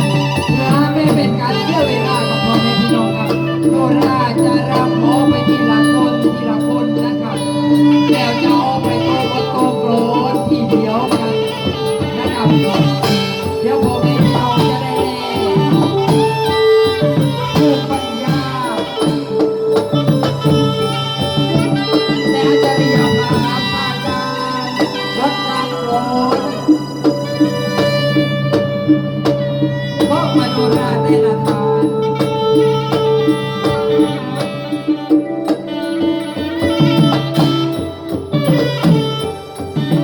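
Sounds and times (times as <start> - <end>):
steady percussion: 0.0 - 40.0
sustained melody: 0.0 - 40.0.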